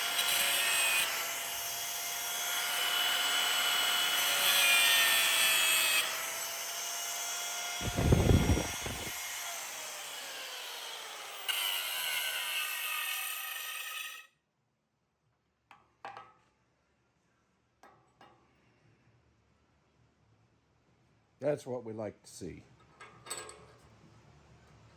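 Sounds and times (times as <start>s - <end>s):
power grinder cutting steel: 0.0s - 14.3s.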